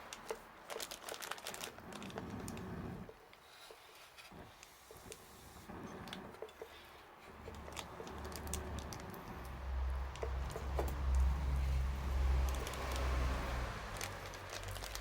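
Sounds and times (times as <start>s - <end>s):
campfire crackling and popping: 7.6s - 15.0s.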